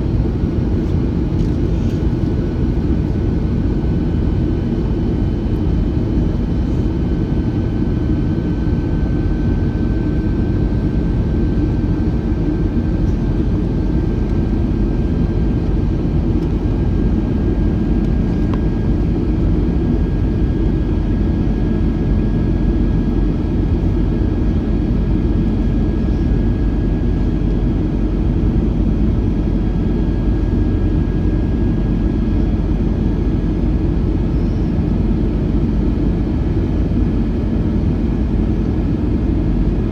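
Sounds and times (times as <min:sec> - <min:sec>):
airplane cabin noise: 0:00.0 - 0:39.9
high engine whine: 0:00.0 - 0:39.9.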